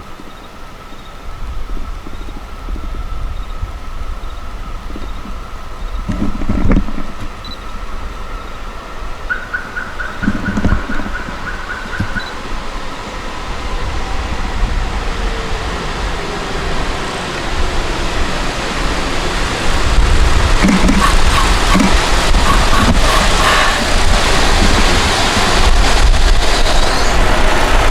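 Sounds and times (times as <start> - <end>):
slowly falling whine: 10.0 - 27.9.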